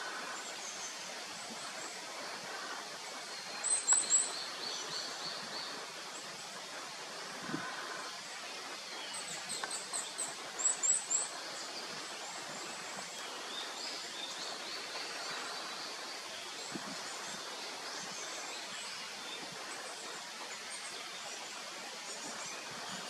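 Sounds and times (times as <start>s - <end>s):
birds chirping: 0.0s - 19.6s
outdoor background hiss: 0.0s - 23.0s.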